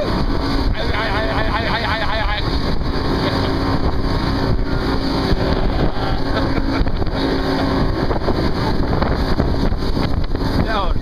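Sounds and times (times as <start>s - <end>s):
boat engine running: 0.0s - 11.0s
loud rushing noise: 0.0s - 11.0s.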